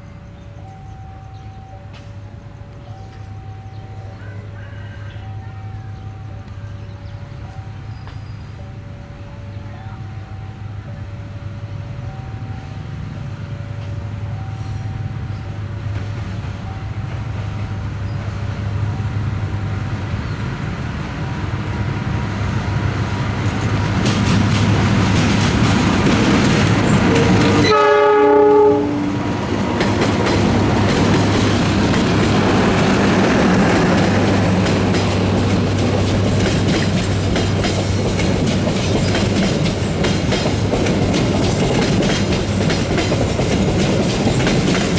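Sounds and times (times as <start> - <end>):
diesel train engine hum: 0.0 - 44.9
train wheels clattering on rails: 13.1 - 44.9
train horn blast: 26.7 - 29.8.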